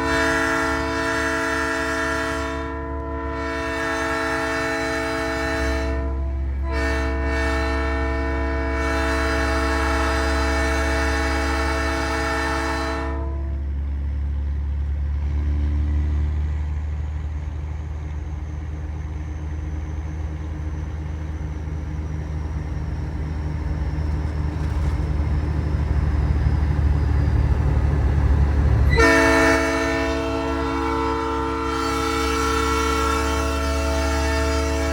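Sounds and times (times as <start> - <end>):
train horn chord: 0.0 - 13.6, 28.7 - 34.9
diesel truck engine drone: 0.0 - 34.9.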